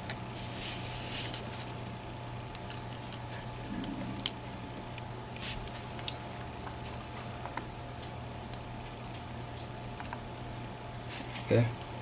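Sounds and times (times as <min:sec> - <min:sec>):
low hum: 0:00.0 - 0:08.0
small lock parts clicking: 0:04.2 - 0:04.4.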